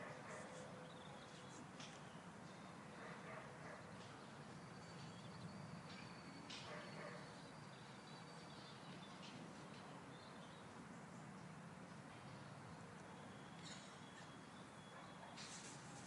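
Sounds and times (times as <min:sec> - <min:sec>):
faint bird chirps: 0:13.1 - 0:15.8.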